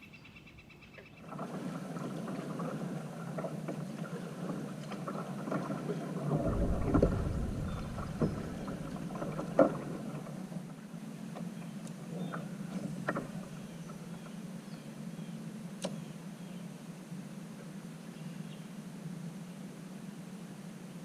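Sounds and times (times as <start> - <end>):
water lapping on kayak hull: 1.2 - 10.9, 12.1 - 14.4
wind gust on microphone: 6.2 - 10.4.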